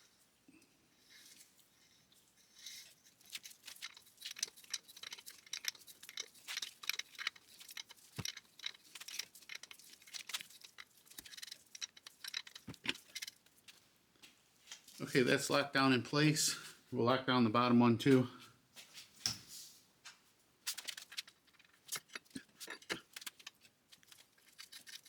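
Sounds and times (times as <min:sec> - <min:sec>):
metallic clicking of hand tool: 0:03.2 - 0:13.4.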